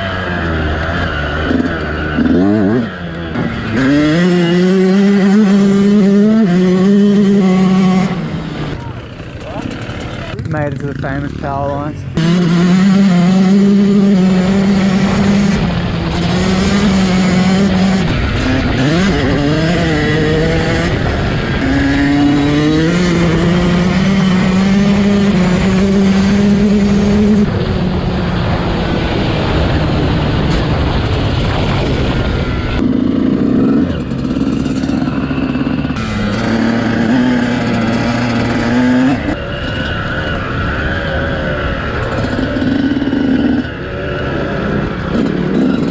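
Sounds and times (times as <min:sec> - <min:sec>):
two-stroke motorcycle engine revving: 0:00.0 - 0:45.9.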